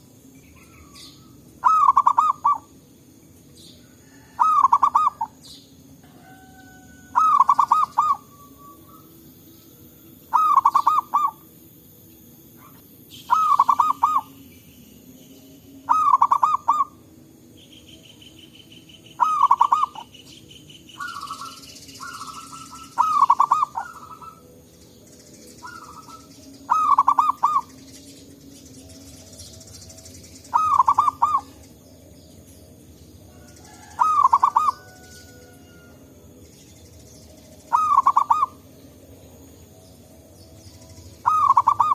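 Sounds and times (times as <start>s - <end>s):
dove cooing: 0.0s - 2.7s, 3.8s - 9.2s, 10.3s - 11.5s, 12.6s - 14.4s, 15.9s - 17.0s, 19.2s - 20.2s, 21.0s - 24.5s, 25.6s - 27.8s, 30.4s - 31.7s, 33.3s - 36.0s, 37.7s - 38.7s, 41.2s - 41.9s
faint dove coos: 4.0s - 5.4s, 6.1s - 9.1s, 10.3s - 11.4s, 19.2s - 20.1s, 25.6s - 27.7s, 33.7s - 36.0s.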